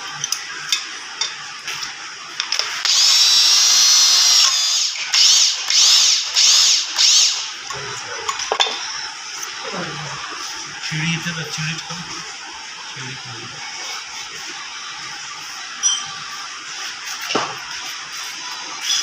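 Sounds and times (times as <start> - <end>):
power tool high whine: 2.6 - 14.9.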